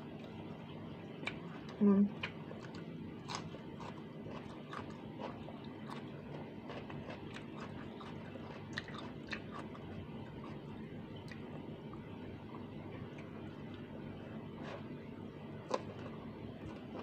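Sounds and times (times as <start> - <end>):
faint steady hum: 0.0 - 17.0
person chewing: 1.2 - 10.7, 15.6 - 17.0.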